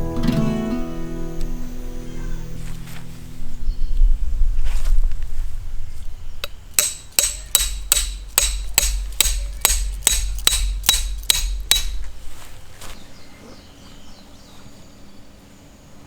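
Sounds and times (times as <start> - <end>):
hammer striking metal: 6.4 - 12.2.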